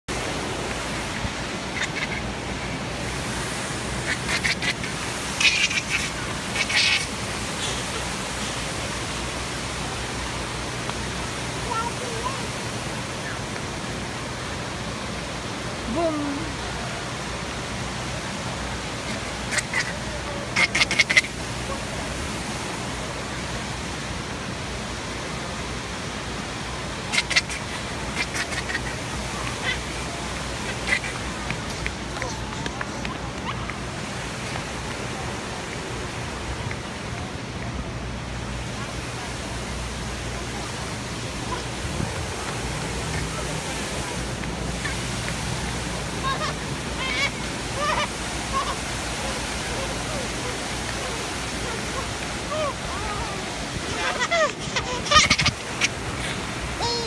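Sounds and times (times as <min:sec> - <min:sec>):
fountain splashing: 0:00.1 - 0:57.0.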